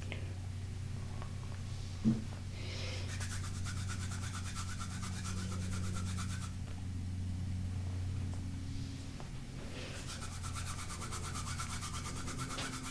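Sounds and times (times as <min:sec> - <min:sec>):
steady low hum: 0:00.0 - 0:12.9
fingernails scratching on stone: 0:03.1 - 0:06.5, 0:10.0 - 0:12.9.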